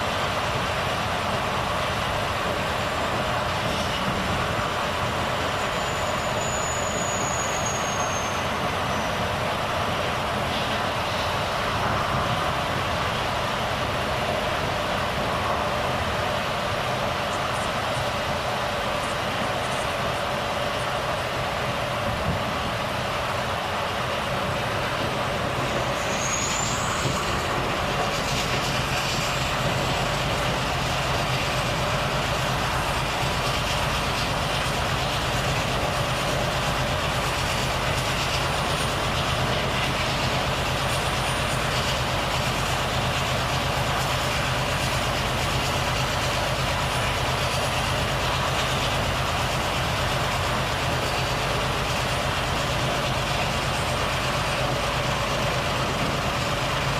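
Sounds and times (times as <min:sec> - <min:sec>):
road and wind noise: 0:00.0 - 0:56.9
truck diesel engine running: 0:00.0 - 0:56.9.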